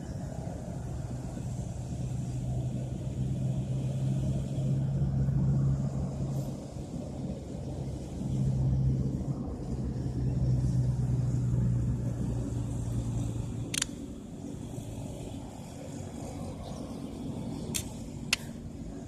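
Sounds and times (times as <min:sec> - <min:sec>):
low motor hum: 0:00.0 - 0:19.0
sharp click: 0:13.7 - 0:14.0, 0:17.7 - 0:18.5.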